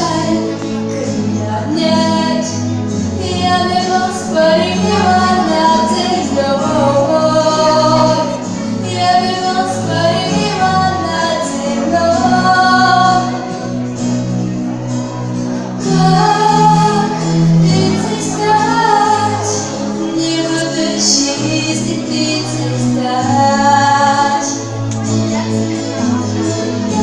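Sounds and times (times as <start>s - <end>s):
woman singing: 0.0s - 13.5s, 15.8s - 27.0s
instrumental accompaniment with bass: 0.0s - 27.0s.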